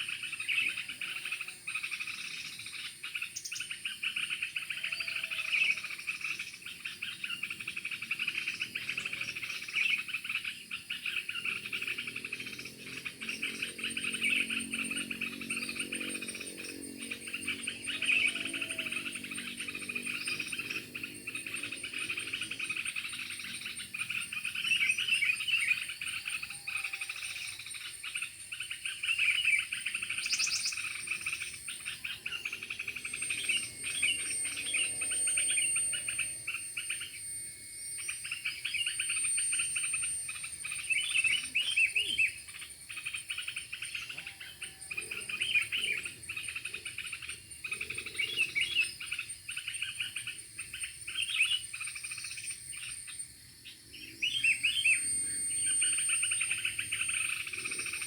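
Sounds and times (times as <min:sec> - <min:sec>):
bird chirps: 0:00.0 - 0:58.0
frogs and insects calling: 0:00.0 - 0:58.0.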